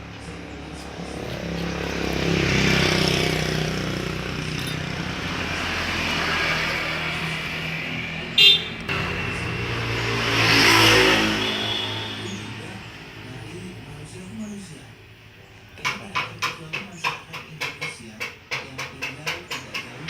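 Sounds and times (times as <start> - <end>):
road traffic passing: 0.0 - 20.0
vehicle horn toot: 8.4 - 8.8, 10.9 - 12.6.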